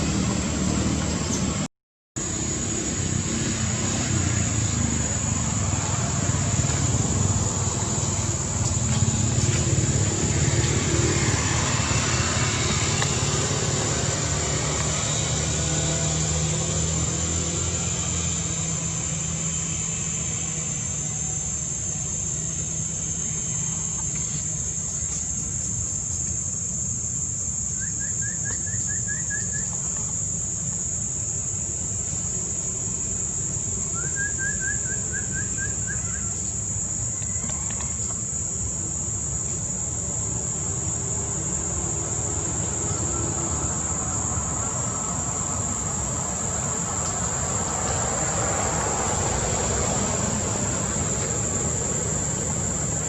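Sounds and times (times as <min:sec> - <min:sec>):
high-pitched insect drone: 0:02.2 - 0:53.0
bird trill: 0:27.7 - 0:30.0, 0:33.9 - 0:36.6.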